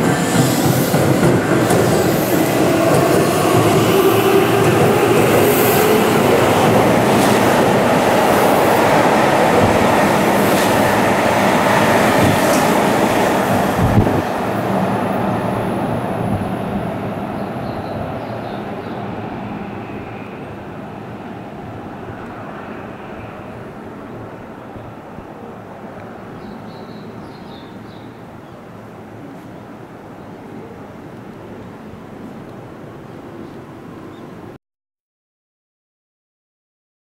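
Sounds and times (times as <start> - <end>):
train wheels rumbling on rail: 0.0 - 24.5
distant train: 0.0 - 34.6.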